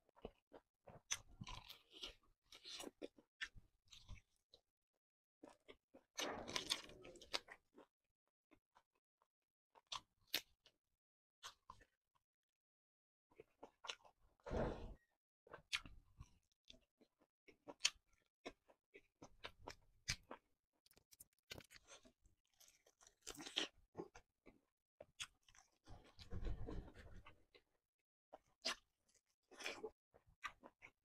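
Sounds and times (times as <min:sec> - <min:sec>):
person chewing: 0:00.1 - 0:04.5, 0:05.4 - 0:07.9, 0:09.7 - 0:10.7, 0:11.4 - 0:12.0, 0:13.4 - 0:14.2, 0:15.5 - 0:26.2, 0:28.3 - 0:31.0
small crunches: 0:19.4 - 0:24.2.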